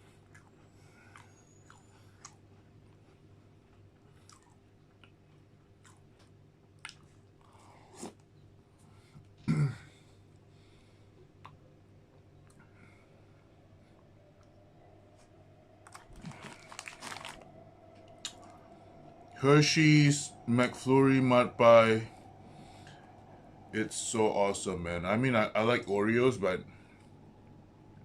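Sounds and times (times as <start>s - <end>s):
chewing and crunching biscuits: 0.0s - 9.4s, 15.2s - 18.6s
faint steady hum: 0.0s - 28.0s.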